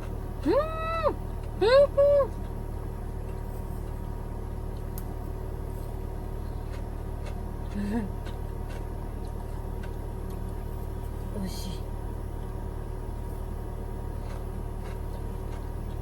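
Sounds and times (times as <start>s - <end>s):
air conditioner humming: 0.0s - 16.0s.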